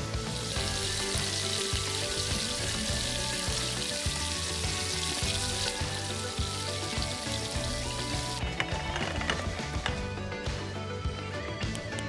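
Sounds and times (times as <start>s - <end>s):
potato slices sizzling in oil: 0.0s - 8.4s
background music: 0.0s - 12.0s.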